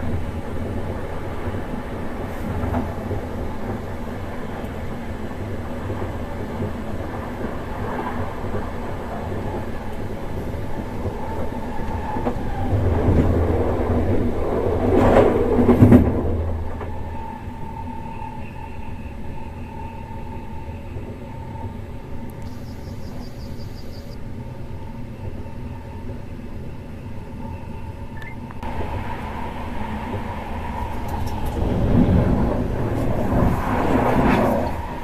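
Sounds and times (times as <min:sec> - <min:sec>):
train rumbling with a whine: 0:00.0 - 0:35.0.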